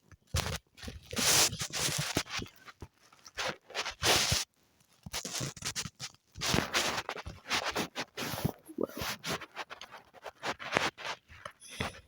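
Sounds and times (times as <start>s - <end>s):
scratchy drawing strokes: 5.2s - 12.0s.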